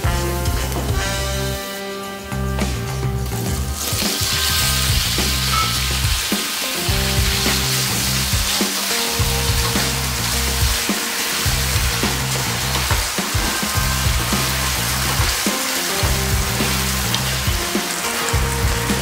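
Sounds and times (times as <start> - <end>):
background music: 0.0 - 19.0
potato sizzling in hot oil: 3.7 - 12.9.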